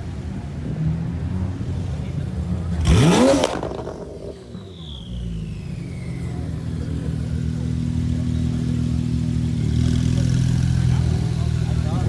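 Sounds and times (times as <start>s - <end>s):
car engine running: 2.6s - 12.0s.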